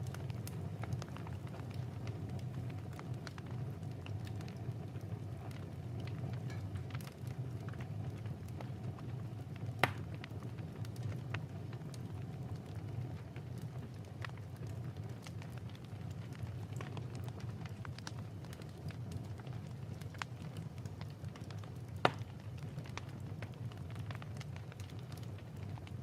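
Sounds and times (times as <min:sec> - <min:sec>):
wood fire crackling: 0:00.0 - 0:26.0
sharp pop of burning wood: 0:06.4 - 0:07.0, 0:09.8 - 0:10.2, 0:22.0 - 0:22.4.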